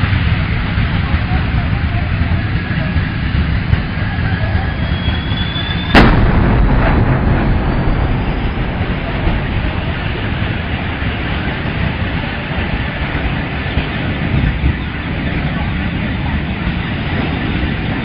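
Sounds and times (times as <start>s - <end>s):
long low rumble: 0.0s - 18.0s
truck exploding: 5.5s - 13.1s.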